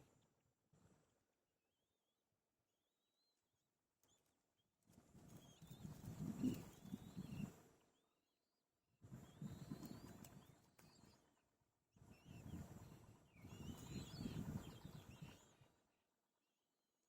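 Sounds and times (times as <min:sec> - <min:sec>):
thin gliding bird whistles: 0:05.2 - 0:15.9.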